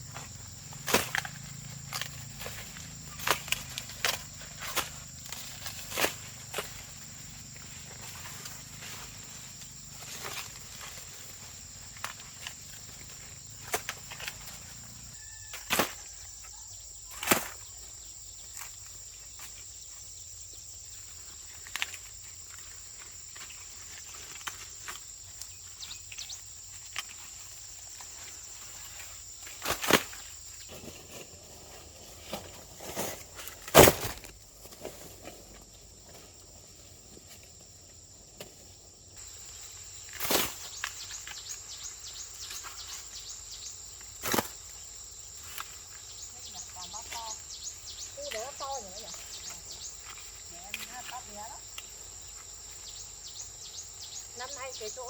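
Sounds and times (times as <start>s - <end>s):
dry maize leaves rustling: 0.0s - 55.0s
corn ears snapping off: 0.7s - 6.9s, 10.0s - 14.6s, 15.5s - 16.1s, 17.1s - 17.6s, 29.5s - 30.3s, 32.4s - 34.4s.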